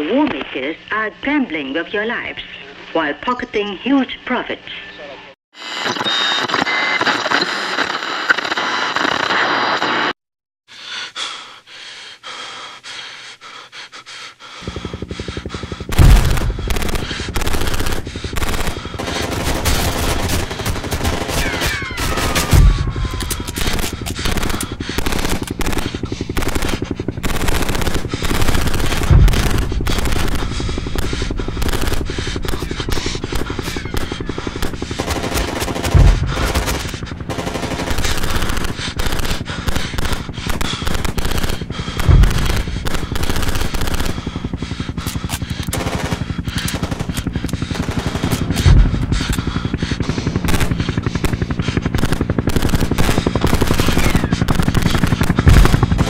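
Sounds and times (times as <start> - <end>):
automatic gunfire: 15.5 - 56.0
heavy low thud: 15.9 - 16.7, 48.6 - 49.2.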